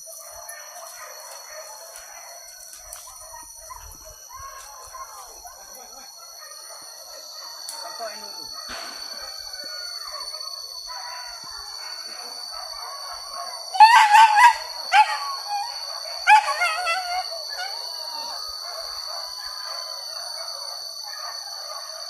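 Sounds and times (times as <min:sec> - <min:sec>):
distant dogs baying: 0:00.0 - 0:22.0
dogs yelping: 0:08.6 - 0:22.0.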